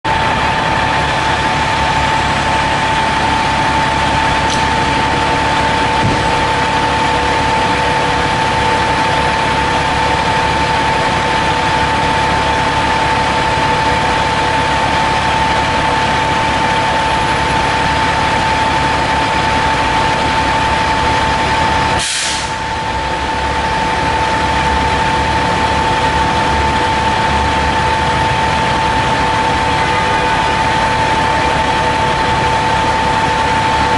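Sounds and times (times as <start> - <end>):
diesel engine idling with whine: 0.1 - 33.9
air brake hiss: 22.0 - 22.6.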